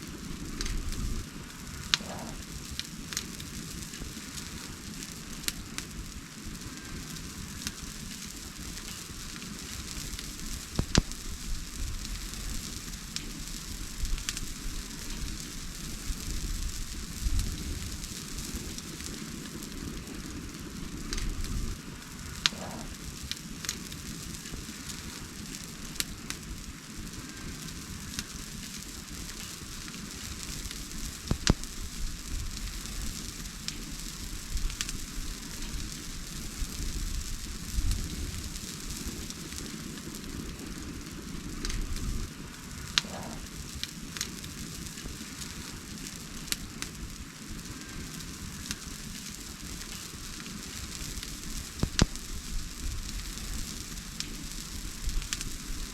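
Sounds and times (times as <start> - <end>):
wood fire crackling: 0.0 - 55.9
sharp pops of burning wood: 0.2 - 55.9.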